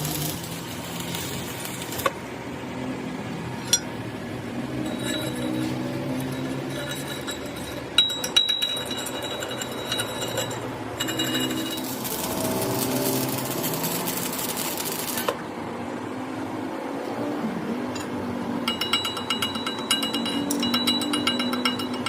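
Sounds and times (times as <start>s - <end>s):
rapid crackling machine noise: 0.0s - 2.7s, 4.4s - 15.6s
metal clinks ringing: 3.6s - 4.0s, 4.8s - 12.4s, 18.0s - 22.0s.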